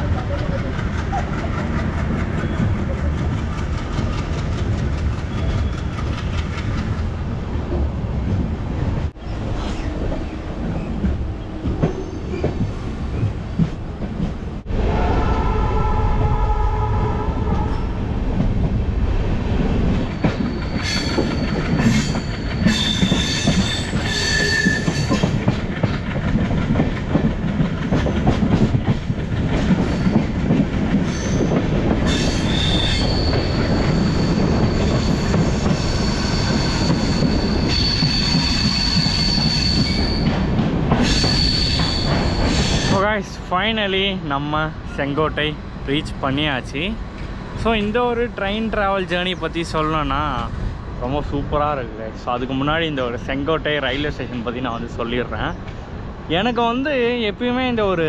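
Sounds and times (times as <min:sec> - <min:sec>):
train rumbling over rails: 0:00.0 - 0:58.0
high-pitched wheel squeal: 0:20.2 - 0:25.3, 0:32.1 - 0:40.3, 0:41.0 - 0:42.9.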